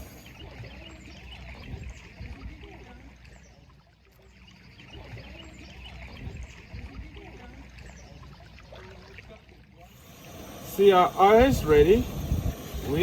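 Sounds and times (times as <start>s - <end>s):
gas stove low rumble: 9.9s - 13.0s.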